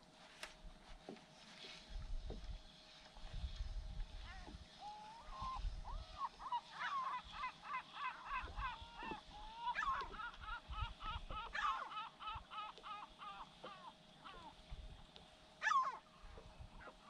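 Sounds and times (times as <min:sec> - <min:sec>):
wind on microphone: 0:03.2 - 0:06.3
gulls calling: 0:04.2 - 0:14.9, 0:15.6 - 0:17.0.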